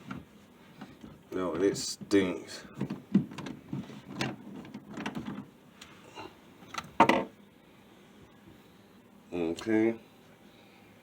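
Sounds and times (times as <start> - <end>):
drain pipes knocking and scraping: 0.0 - 5.5, 6.8 - 7.3.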